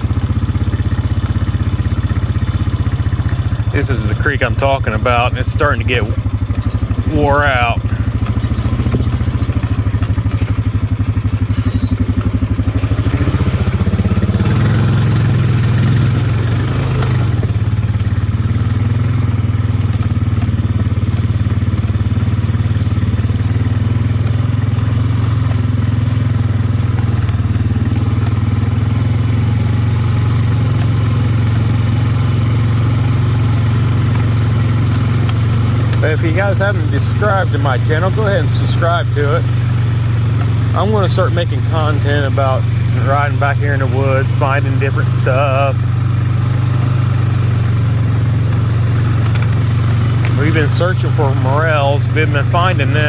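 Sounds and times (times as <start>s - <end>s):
atv engine running: 0.0s - 53.0s.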